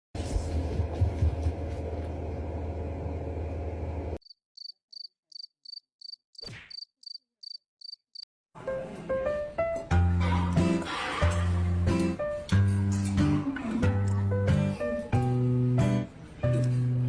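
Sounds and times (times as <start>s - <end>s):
cricket chirping: 4.2s - 8.3s.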